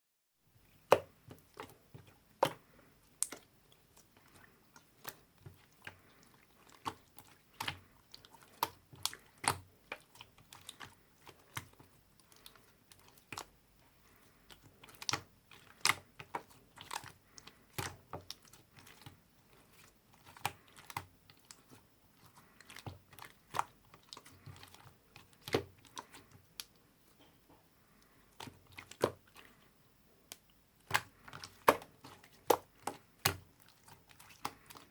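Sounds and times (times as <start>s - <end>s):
hands tapping craft materials: 0.8s - 3.5s, 30.3s - 34.9s.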